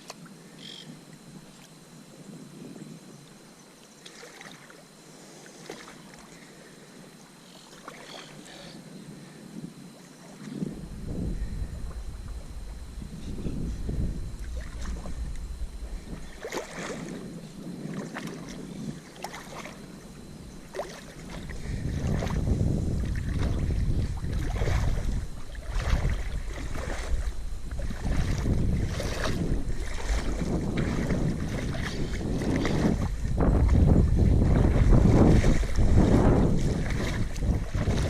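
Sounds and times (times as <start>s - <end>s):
wind buffeting microphone: 9.2s - 38.0s.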